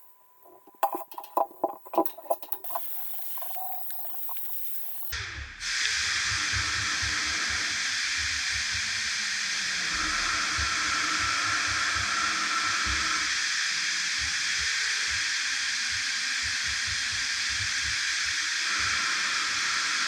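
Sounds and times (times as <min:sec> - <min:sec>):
loud hiss: 0:02.2 - 0:05.1.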